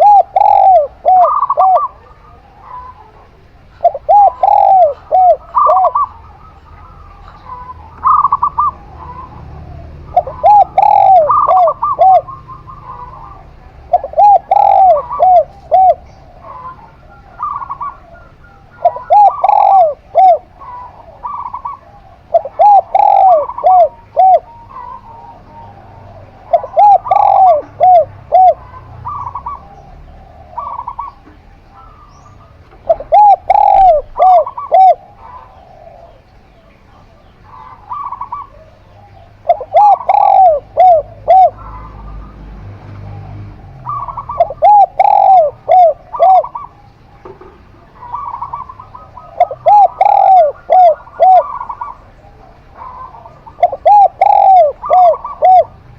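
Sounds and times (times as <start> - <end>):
doves cooing: 0.0 - 55.9
higher dove coos: 0.0 - 55.9.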